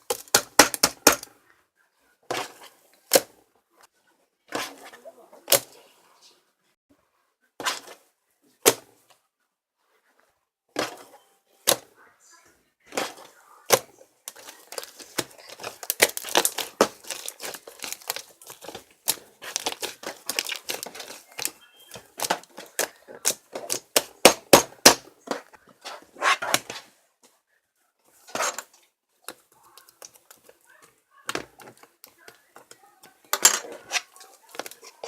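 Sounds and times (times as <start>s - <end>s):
small objects clicking and crinkling: 0.0s - 1.4s, 12.9s - 25.7s, 28.2s - 35.0s.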